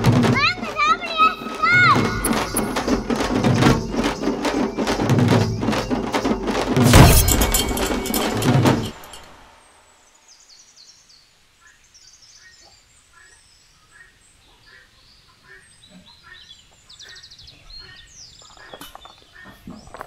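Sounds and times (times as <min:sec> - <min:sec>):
repeated bird call: 0:00.0 - 0:08.6
small birds chirping: 0:10.2 - 0:20.0.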